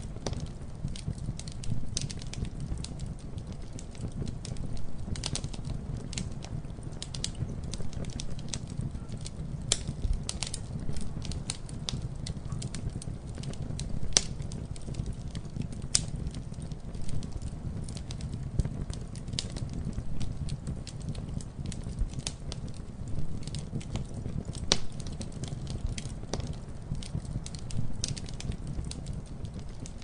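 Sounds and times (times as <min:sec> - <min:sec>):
campfire crackling: 0:00.0 - 0:30.0
low rumble of flames: 0:00.0 - 0:30.0
sharp pops and snaps of wood: 0:24.5 - 0:29.0.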